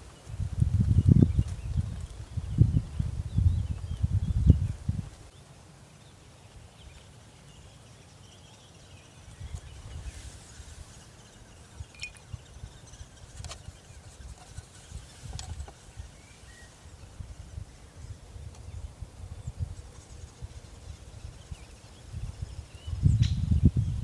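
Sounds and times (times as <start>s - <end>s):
gusting wind rumble: 0.3s - 5.2s, 20.9s - 24.0s
faint bird chirps: 0.9s - 24.0s.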